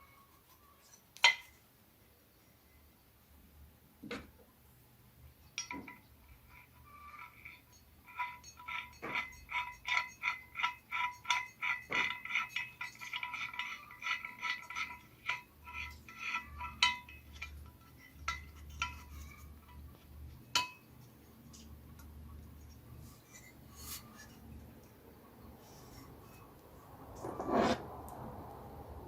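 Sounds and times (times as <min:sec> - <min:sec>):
metal part clinking: 0:05.6 - 0:19.8, 0:20.5 - 0:21.7.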